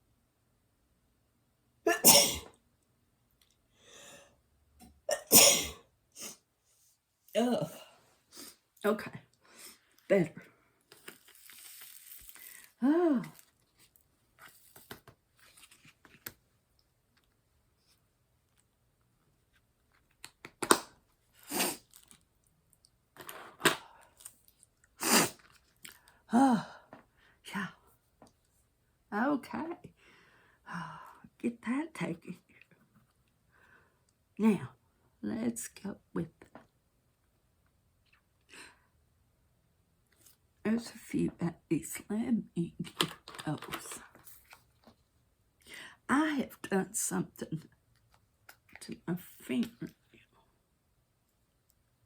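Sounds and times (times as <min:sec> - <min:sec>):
woman sneezing: 0:01.9 - 0:02.5, 0:05.1 - 0:06.4, 0:25.0 - 0:25.4.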